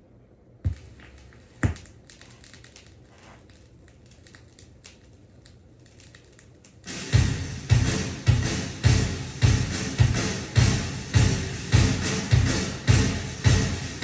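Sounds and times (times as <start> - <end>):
stylus thumps on record: 0.6 - 3.5
vinyl surface crackle: 0.7 - 7.1.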